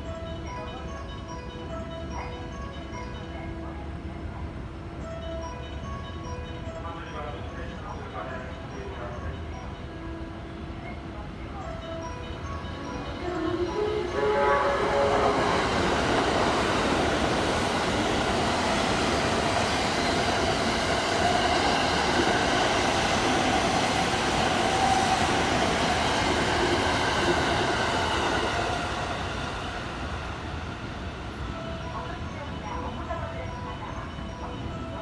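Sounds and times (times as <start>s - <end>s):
train passing at speed: 0.0s - 35.0s.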